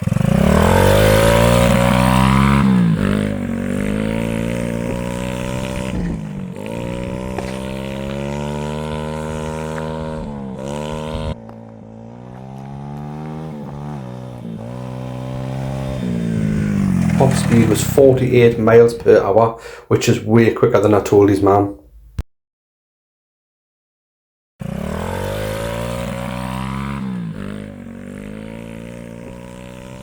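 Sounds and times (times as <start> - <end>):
motorbike engine at full throttle: 0.0 - 18.4, 24.6 - 30.0.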